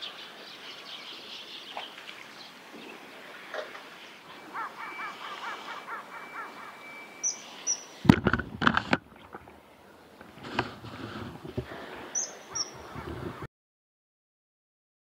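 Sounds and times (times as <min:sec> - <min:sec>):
sharp high bird notes: 0:04.4 - 0:08.0.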